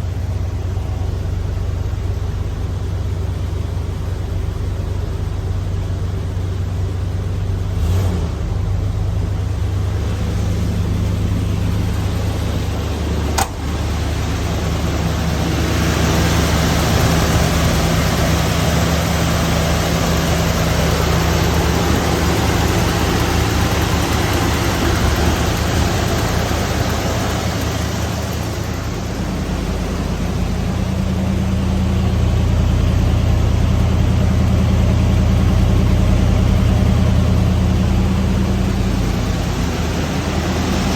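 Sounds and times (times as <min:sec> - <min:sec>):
engine idling: 0:00.0 - 0:40.9
sharp click: 0:13.3 - 0:13.7.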